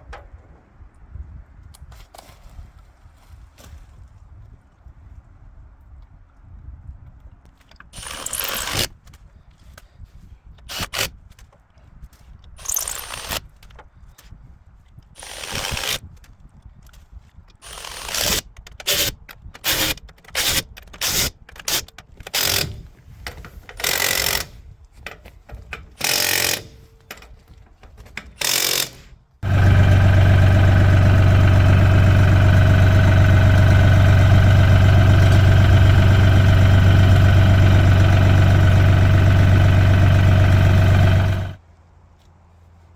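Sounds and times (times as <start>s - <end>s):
power tool bursts: 8.0s - 8.9s, 12.6s - 13.4s, 15.2s - 16.0s, 17.6s - 22.9s, 23.8s - 24.6s, 26.0s - 26.9s, 28.4s - 41.6s
tractor diesel engine running: 28.7s - 41.6s.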